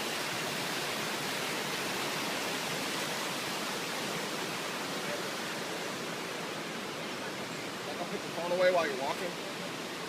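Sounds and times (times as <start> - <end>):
rushing water hiss: 0.0 - 10.0.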